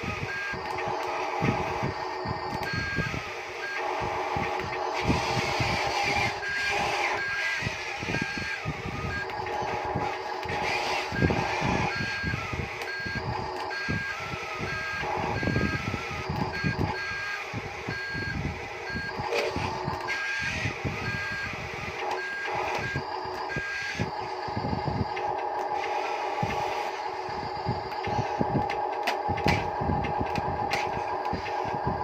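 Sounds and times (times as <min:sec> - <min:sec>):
mechanical whine: 0:00.0 - 0:32.0
reverse warning beeper: 0:00.2 - 0:25.2.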